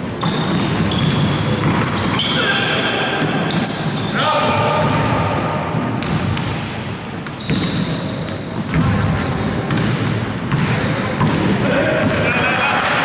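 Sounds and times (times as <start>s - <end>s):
shoe squeaks: 0.0s - 4.6s, 5.4s - 8.6s, 9.2s - 9.6s, 10.7s - 11.2s
basketball bouncing on court: 0.2s - 2.3s, 3.2s - 12.4s
murmur of voices: 8.6s - 13.0s.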